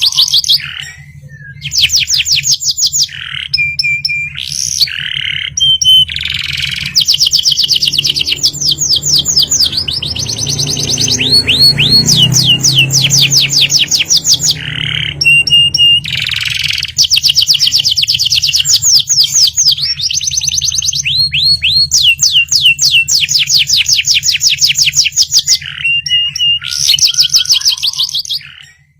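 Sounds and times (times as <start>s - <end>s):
canary singing rolling trills: 0.0s - 28.9s.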